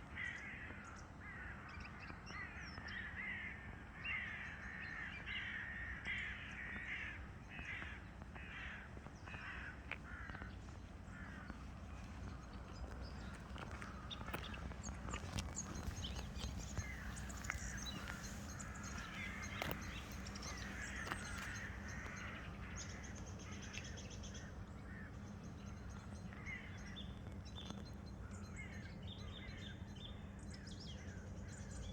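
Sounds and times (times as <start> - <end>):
steady low rumble: 10.6 - 29.0
birds singing and chirping: 11.6 - 31.9.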